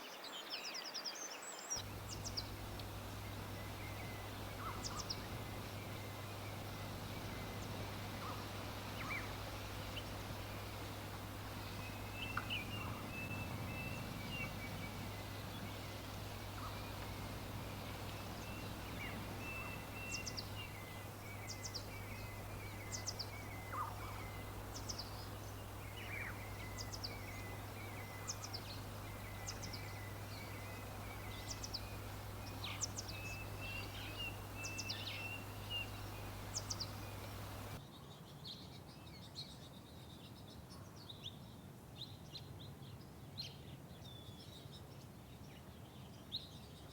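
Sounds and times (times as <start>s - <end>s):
small birds chirping: 0.1s - 37.9s
chattering bird call: 1.8s - 37.8s
low background hum: 1.8s - 37.8s.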